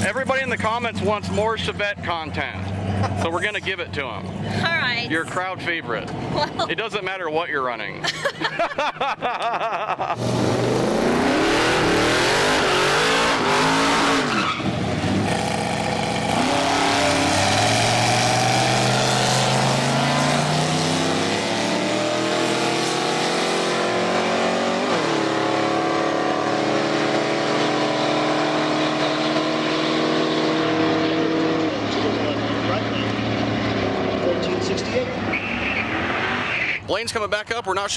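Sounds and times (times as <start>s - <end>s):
race car engine at full throttle: 0.0s - 6.8s, 10.2s - 36.8s
tire squeal: 11.5s - 15.8s, 34.9s - 36.9s.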